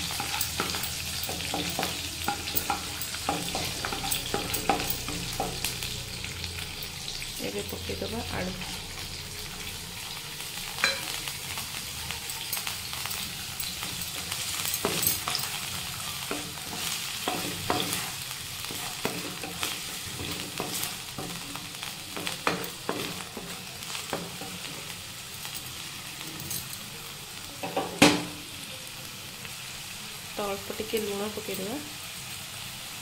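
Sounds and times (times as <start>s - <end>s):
potato sizzling in hot oil: 0.0s - 33.0s
wooden spatula scraping a pan: 13.7s - 24.9s.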